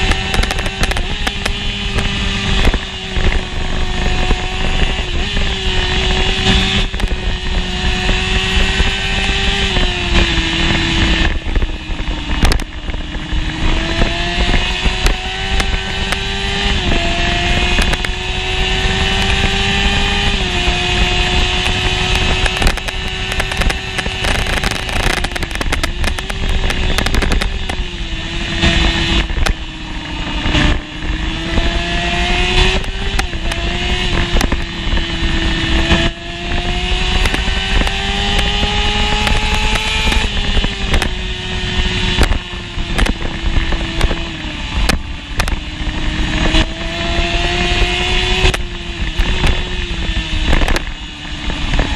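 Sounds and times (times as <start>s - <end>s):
motorcycle engine at racing revs: 0.0s - 51.9s.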